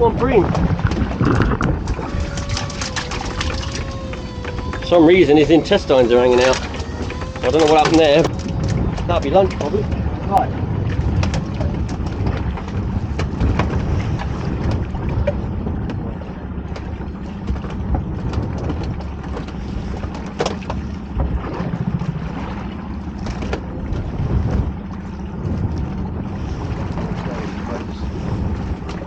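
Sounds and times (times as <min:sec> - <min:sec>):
wind and water rumble: 0:00.0 - 0:29.0
gear knocking and clicking: 0:00.5 - 0:10.0.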